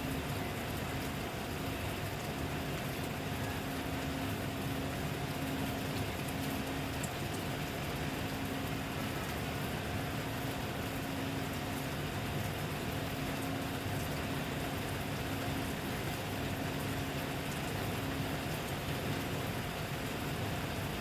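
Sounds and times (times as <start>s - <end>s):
steady rain falling: 0.2s - 21.0s
raindrop ticks: 5.2s - 8.7s.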